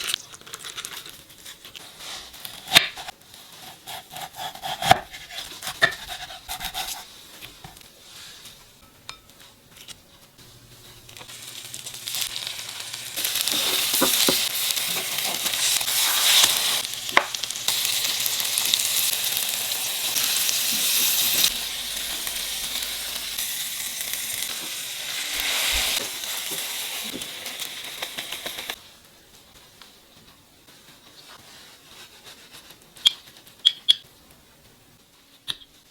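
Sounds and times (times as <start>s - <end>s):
food sizzling in a pan: 10.4s - 28.9s.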